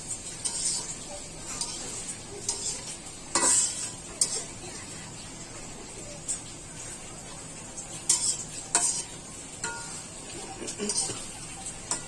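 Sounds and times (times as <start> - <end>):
spatula scraping and clinking on pot: 0.0 - 5.0, 8.0 - 12.0
curry sizzling in a pot: 0.0 - 12.0.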